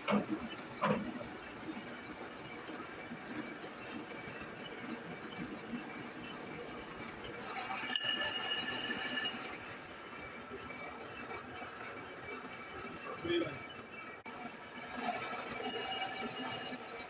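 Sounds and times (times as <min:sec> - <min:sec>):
metal lathe running: 0:00.0 - 0:17.0
ringing metallic tone: 0:07.4 - 0:10.3, 0:14.9 - 0:17.0.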